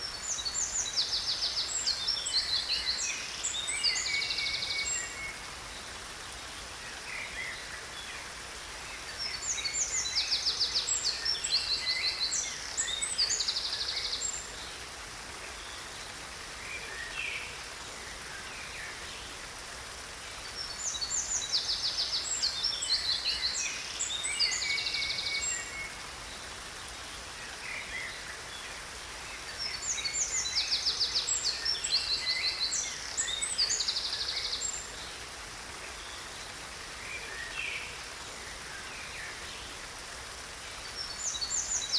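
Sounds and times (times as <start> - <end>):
waterfall hiss: 0.0 - 41.9.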